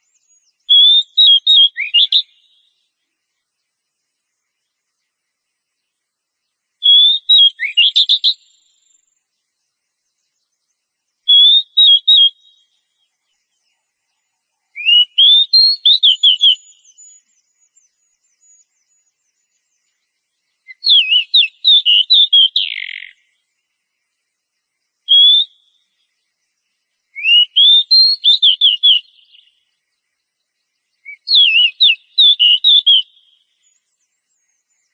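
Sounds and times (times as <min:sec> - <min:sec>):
bird singing whistled phrases: 0:00.0 - 0:02.8, 0:06.8 - 0:09.2, 0:11.2 - 0:13.1, 0:14.6 - 0:20.0, 0:20.6 - 0:23.3, 0:25.0 - 0:26.0, 0:27.1 - 0:29.6, 0:31.0 - 0:34.9.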